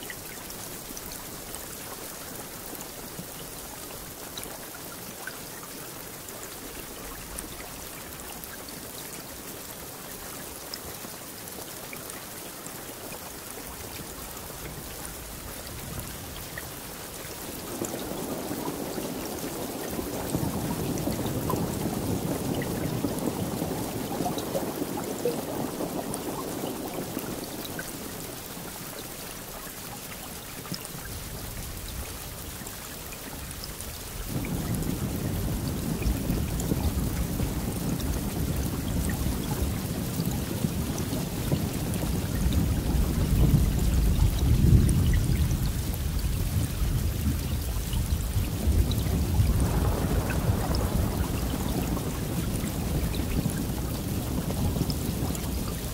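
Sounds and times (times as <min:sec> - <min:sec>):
rain falling: 0:00.0 - 0:55.9
thunder rumbling: 0:17.5 - 0:28.2, 0:34.2 - 0:55.9.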